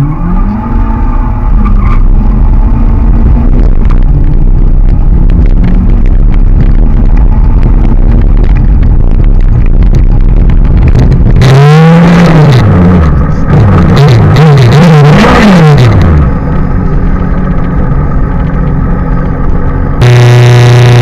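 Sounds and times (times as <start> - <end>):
car engine accelerating hard: 0.0 - 21.0
rattling and crackle: 0.0 - 21.0.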